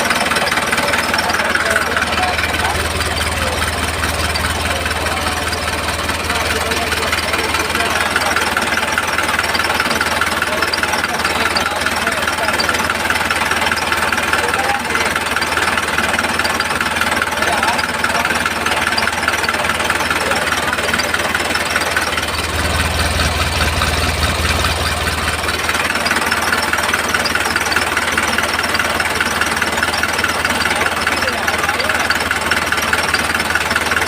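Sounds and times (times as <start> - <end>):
deep low hum: 22.4 - 25.5.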